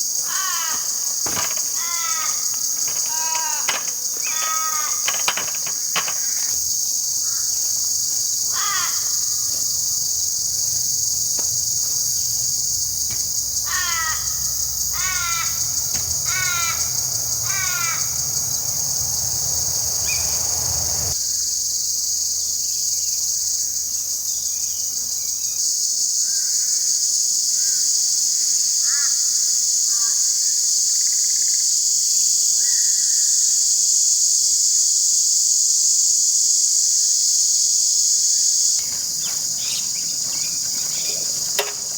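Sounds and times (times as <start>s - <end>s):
high-pitched insect chorus: 0.0s - 21.5s, 33.4s - 41.9s
crow cawing: 0.2s - 6.6s, 7.2s - 21.1s, 38.8s - 41.9s
faint short bird calls: 10.5s - 21.2s.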